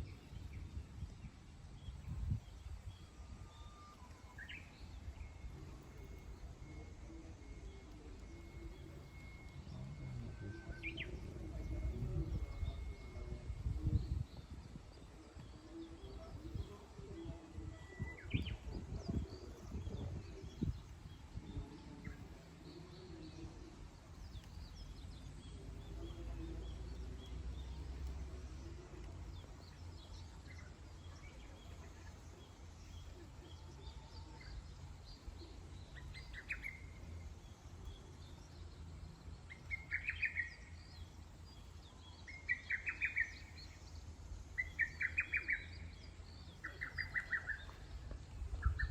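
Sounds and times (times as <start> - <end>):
low outdoor rumble: 0.0 - 48.9
birds chirping and whistling: 8.4 - 14.4, 44.6 - 48.9.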